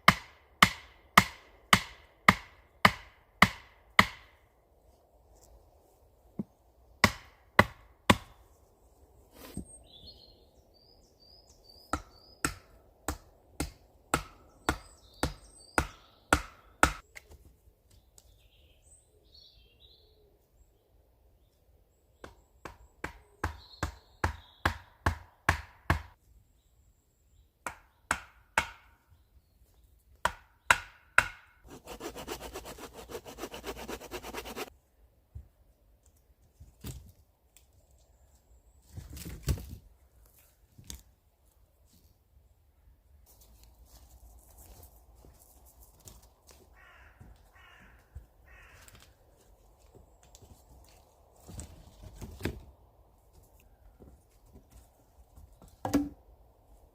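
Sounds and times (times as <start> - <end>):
tool striking wood: 0.0 - 4.3, 30.2 - 34.7, 55.8 - 56.2
fast rasping strokes: 31.7 - 34.7.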